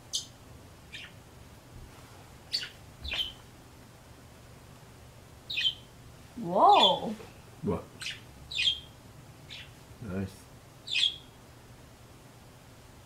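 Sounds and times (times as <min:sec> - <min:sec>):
bird chirping: 0:00.0 - 0:01.2, 0:02.5 - 0:03.4, 0:05.5 - 0:05.9, 0:06.7 - 0:07.1, 0:08.0 - 0:09.8, 0:10.8 - 0:11.4.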